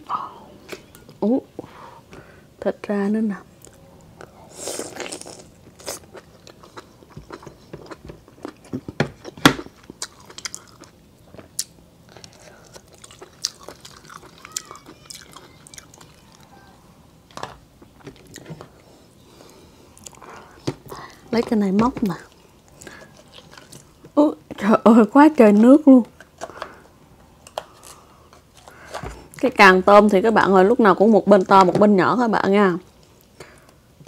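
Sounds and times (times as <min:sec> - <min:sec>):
biting and chewing: 0:03.6 - 0:16.7, 0:22.2 - 0:24.0.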